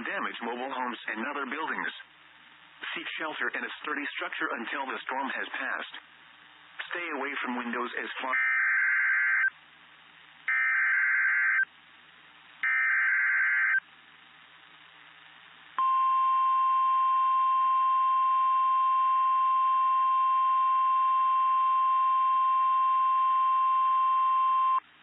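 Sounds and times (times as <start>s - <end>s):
radio hiss: 0.0s - 8.4s.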